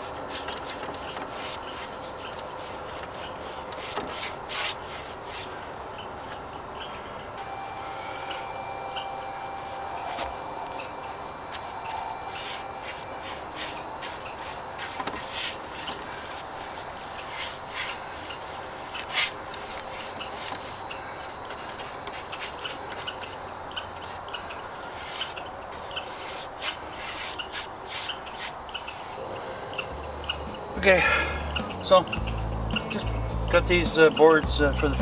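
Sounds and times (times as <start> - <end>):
wood rubbing and scraping: 0.0 - 6.1, 11.5 - 23.3, 29.8 - 35.0
steady hiss: 29.0 - 35.0.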